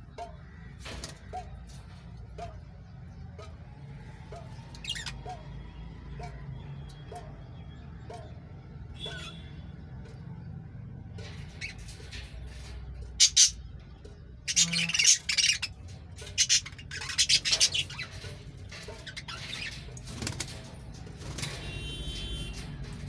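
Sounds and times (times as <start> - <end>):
lovebirds squawking: 4.8 - 5.4, 13.0 - 13.7, 14.4 - 20.6.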